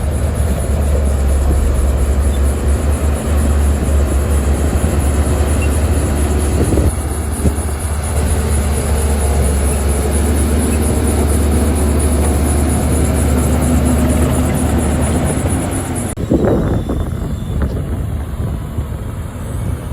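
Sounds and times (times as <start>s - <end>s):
diesel engine droning: 0.0s - 19.9s.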